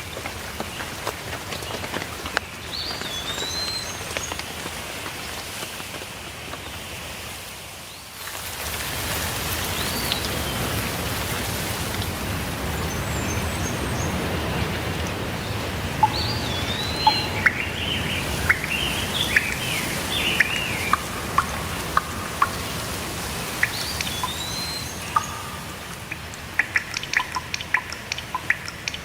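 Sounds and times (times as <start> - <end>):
water dripping ticks: 0.0 - 6.6, 8.2 - 29.0
steady rainfall: 0.0 - 29.0
birds chirping and whistling: 16.0 - 28.7.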